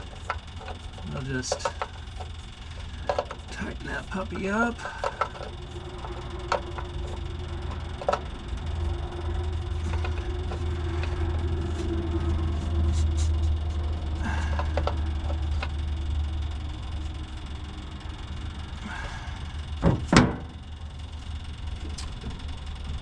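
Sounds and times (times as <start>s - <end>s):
electric fuel pump humming: 0.0s - 23.0s
low rumble: 4.8s - 19.8s.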